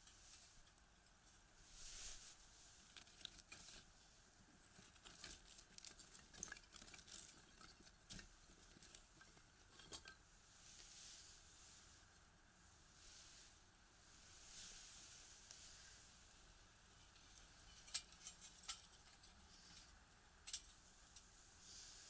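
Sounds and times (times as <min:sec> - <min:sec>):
faint hiss of flames: 0:00.0 - 0:05.8, 0:07.9 - 0:22.0
firewood crackling and popping: 0:02.0 - 0:10.2.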